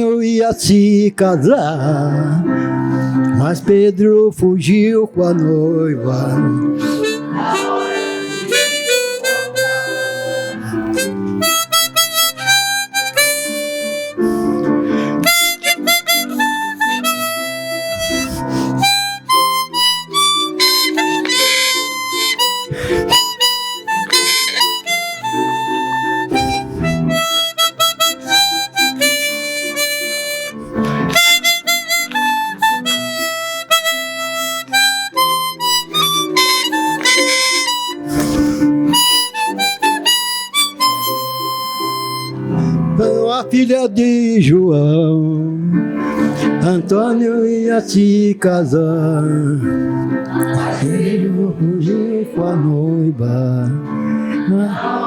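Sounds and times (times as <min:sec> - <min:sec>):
harmonica melody: 0:05.6 - 0:43.8, 0:45.8 - 0:46.8
strummed acoustic guitar: 0:17.5 - 0:28.0.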